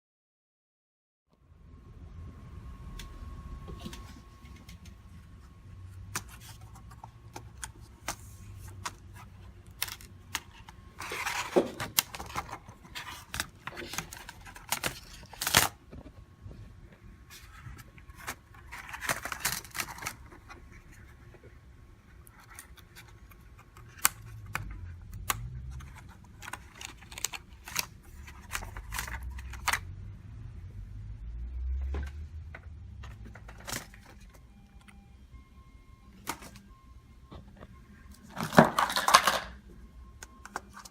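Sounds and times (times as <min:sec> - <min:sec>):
plastic laptop parts clicking: 0:06.1 - 0:16.1, 0:17.8 - 0:21.1, 0:22.2 - 0:29.9, 0:32.0 - 0:35.0.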